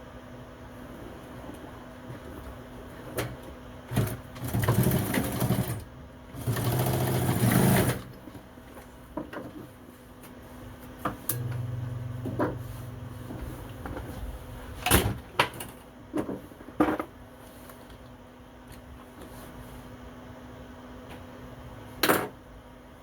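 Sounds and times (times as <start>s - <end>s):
sewing machine stitching: 4.0s - 8.1s
low steady hum: 10.0s - 16.6s.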